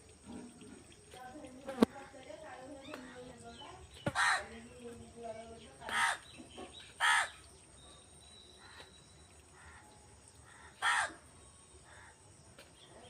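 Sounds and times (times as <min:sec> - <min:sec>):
crow cawing: 0:04.1 - 0:04.5, 0:05.9 - 0:06.3, 0:07.0 - 0:07.4, 0:09.6 - 0:11.3.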